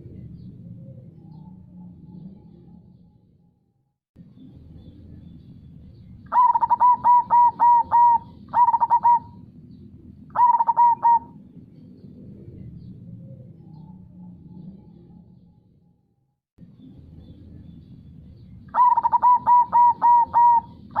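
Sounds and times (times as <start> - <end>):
dove cooing: 6.3 - 9.6, 10.3 - 15.1, 18.7 - 21.0.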